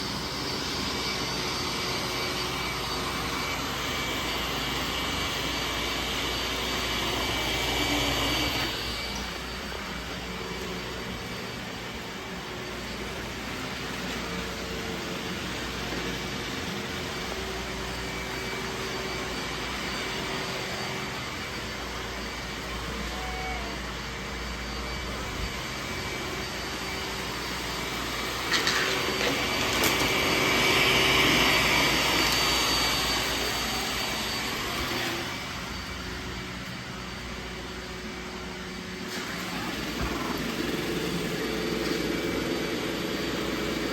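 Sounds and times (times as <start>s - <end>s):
robot vacuum running: 0.0s - 43.9s.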